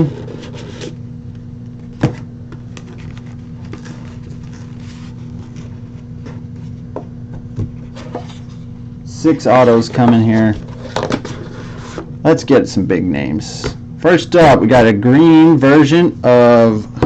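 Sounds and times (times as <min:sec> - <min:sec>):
low electrical hum: 0:00.0 - 0:17.0
handling of cards and packaging: 0:01.7 - 0:06.7.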